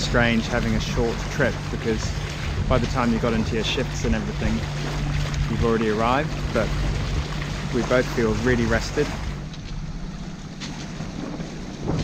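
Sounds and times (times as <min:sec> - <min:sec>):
steady low hum: 0:00.0 - 0:12.0
wind on microphone: 0:02.0 - 0:07.8.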